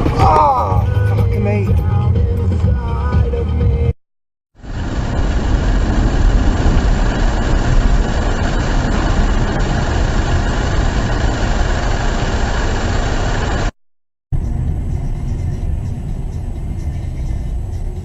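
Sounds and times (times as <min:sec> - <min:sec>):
vehicle engine and road noise: 0:04.6 - 0:18.0.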